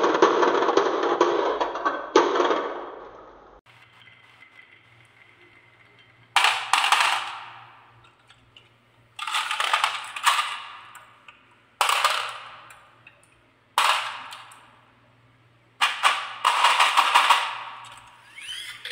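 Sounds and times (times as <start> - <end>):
marbles rattling down wooden run: 3.7 - 8.1, 15.8 - 18.9.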